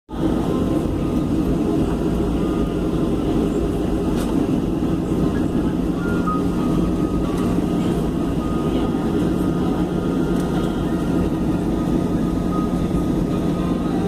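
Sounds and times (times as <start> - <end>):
aircraft engine running: 0.1 - 14.0.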